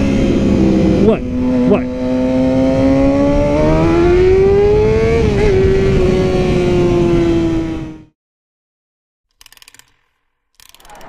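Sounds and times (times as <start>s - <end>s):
wind noise: 0.0s - 8.0s.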